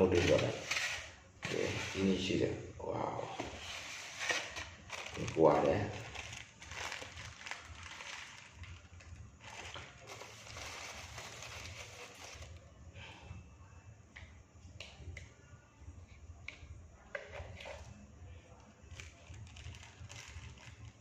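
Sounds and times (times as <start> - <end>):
food being handled and eaten: 4.2 - 12.6, 18.6 - 21.0.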